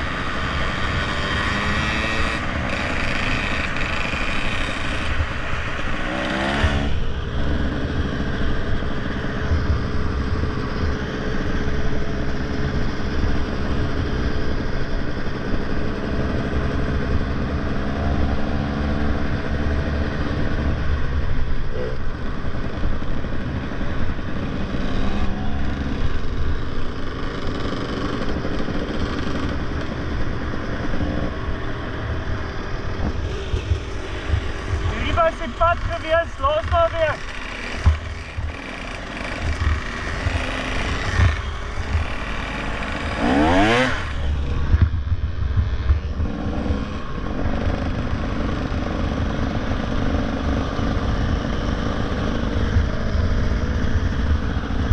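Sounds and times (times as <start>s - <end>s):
motorcycle engine running: 0.0s - 54.9s
wind rumble on microphone: 43.6s - 48.4s.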